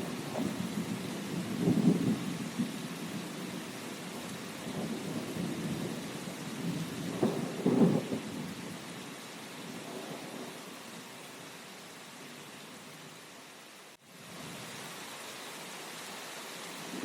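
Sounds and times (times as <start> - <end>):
rolling thunder rumble: 0.0 - 8.9
steady rain: 0.0 - 17.0.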